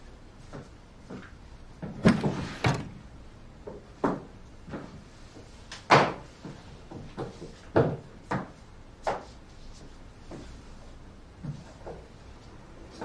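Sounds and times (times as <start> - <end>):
household knocks and clunks: 1.8 - 3.1.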